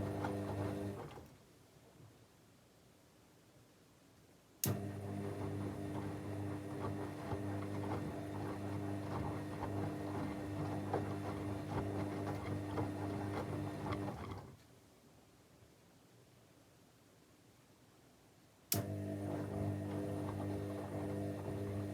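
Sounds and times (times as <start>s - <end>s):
washing machine drum humming: 0.0s - 1.2s, 4.7s - 14.5s, 18.8s - 21.9s.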